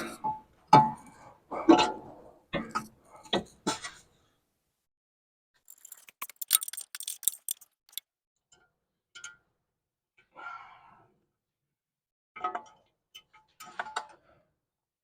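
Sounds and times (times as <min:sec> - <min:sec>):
metallic clicks and clinks: 0:05.6 - 0:08.0.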